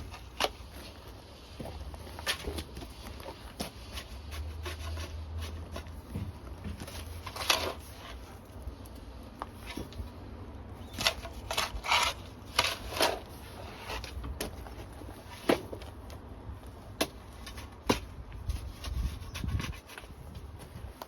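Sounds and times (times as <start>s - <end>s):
shovel scraping backfill: 0.0s - 8.5s, 10.8s - 15.9s.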